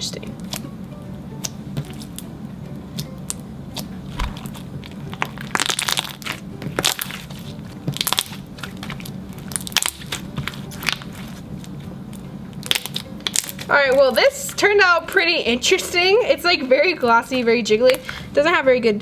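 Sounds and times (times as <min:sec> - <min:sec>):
slime squished by hand: 0:03.0 - 0:11.4.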